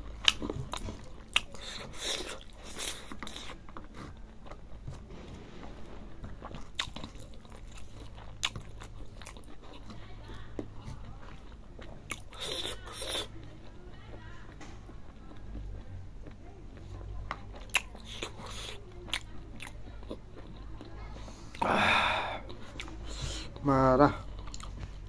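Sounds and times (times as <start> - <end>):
close chewing mouth noises: 0.0 - 25.0.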